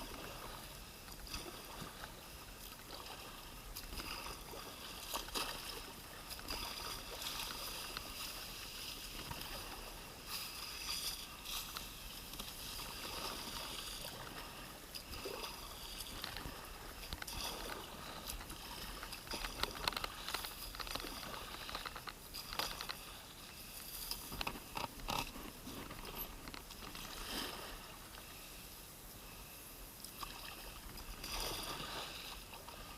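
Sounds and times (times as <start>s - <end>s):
water dripping and sloshing: 0.0s - 23.2s
paddle splashing in water: 0.0s - 28.5s, 30.1s - 32.9s.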